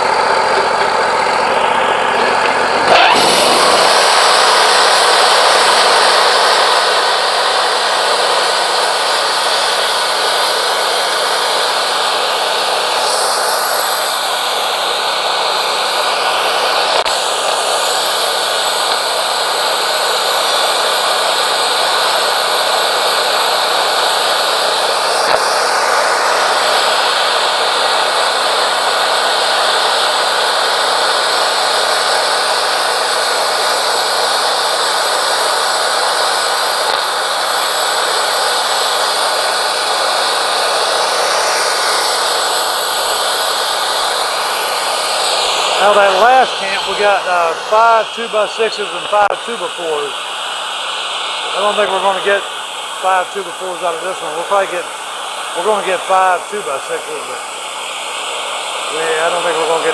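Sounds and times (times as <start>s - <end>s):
band blade sawing wood: 0.0s - 5.4s
sawmill engine running: 0.0s - 59.9s.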